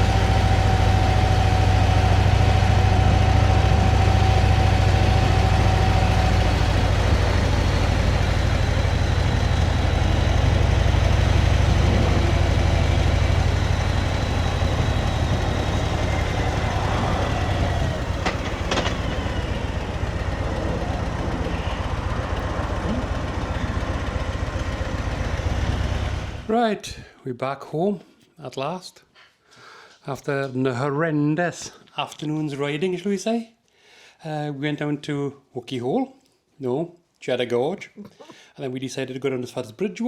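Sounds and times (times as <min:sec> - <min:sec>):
motorcycle engine running: 0:00.0 - 0:26.5
road and wind noise: 0:00.0 - 0:26.5.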